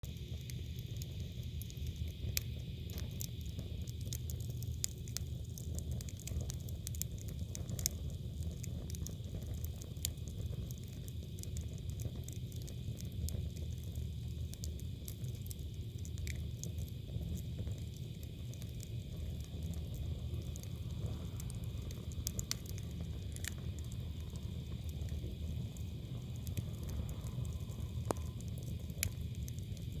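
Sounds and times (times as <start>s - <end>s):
firewood crackling and popping: 0.0s - 30.0s
low rumble of fire: 0.0s - 30.0s.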